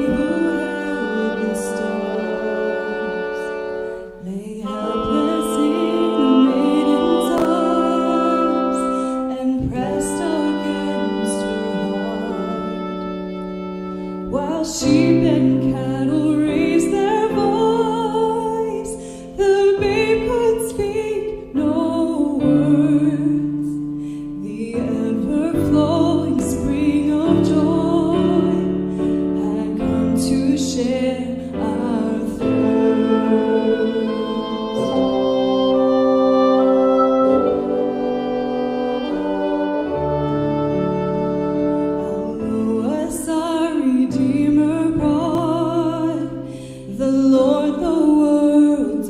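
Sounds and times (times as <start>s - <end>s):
woman singing a hymn: 0.0s - 13.4s, 14.2s - 49.0s
long held instrument notes: 0.0s - 18.8s, 30.8s - 46.3s
piano: 0.0s - 49.0s.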